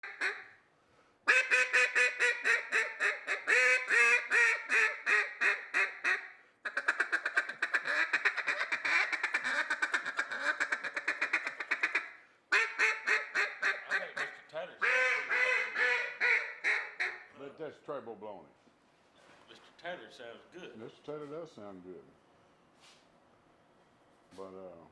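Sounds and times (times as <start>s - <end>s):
duck call fast short notes: 0.0s - 0.5s, 1.3s - 17.3s
duck call quacks: 0.0s - 0.6s, 1.3s - 17.3s.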